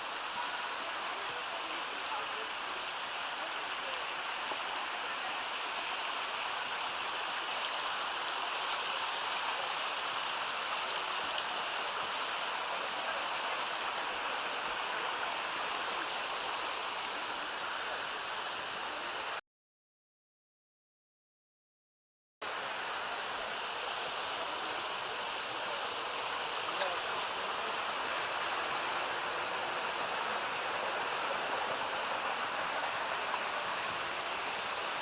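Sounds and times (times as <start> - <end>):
creek rushing over small waterfalls: 0.0 - 19.4, 22.4 - 35.0.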